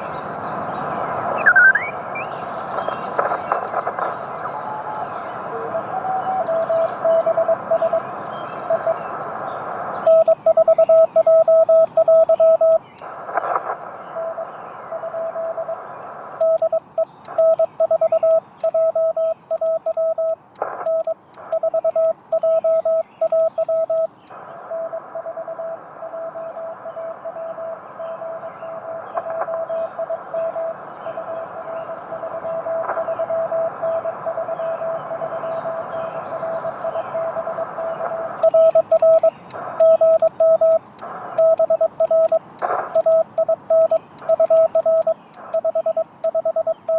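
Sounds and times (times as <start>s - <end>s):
radio band hiss: 0.0s - 46.9s
faint keying clicks: 10.0s - 13.2s, 16.4s - 24.4s, 38.4s - 46.9s
morse code tone: 10.1s - 13.1s, 16.4s - 28.4s, 29.5s - 46.9s.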